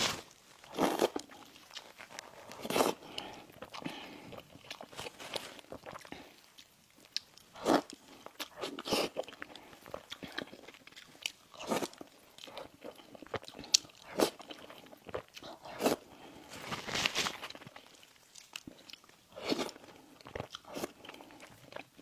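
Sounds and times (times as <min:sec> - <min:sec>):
chewing: 0:00.6 - 0:16.8, 0:17.4 - 0:22.0.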